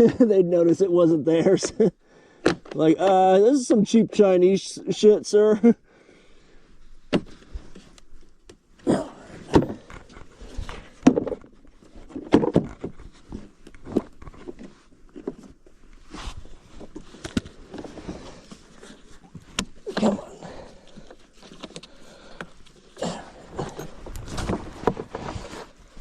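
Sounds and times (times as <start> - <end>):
rustling scrapes: 9.7 - 26.0.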